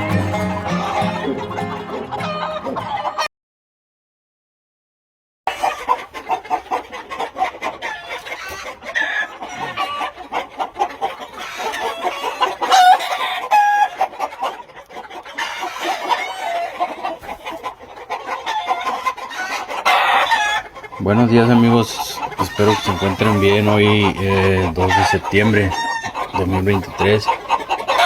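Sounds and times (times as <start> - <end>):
chickens clucking: 0.0 - 3.3, 5.5 - 28.0
rooster crowing: 0.0 - 3.3.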